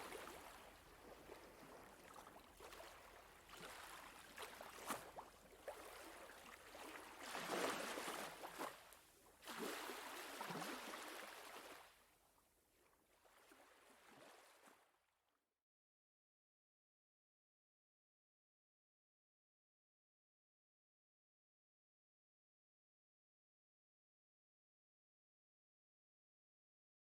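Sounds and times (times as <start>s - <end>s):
sea water lapping at shore: 0.0s - 12.0s, 13.1s - 14.9s.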